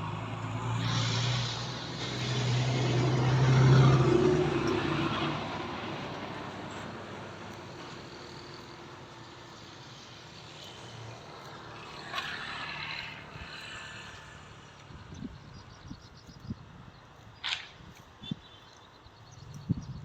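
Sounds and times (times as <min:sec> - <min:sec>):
vehicle engine moving off: 0:00.0 - 0:08.7.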